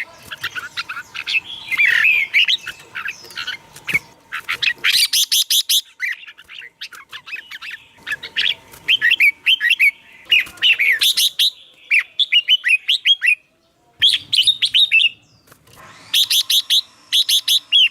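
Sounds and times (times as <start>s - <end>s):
bird singing whistled notes: 0.4s - 4.1s.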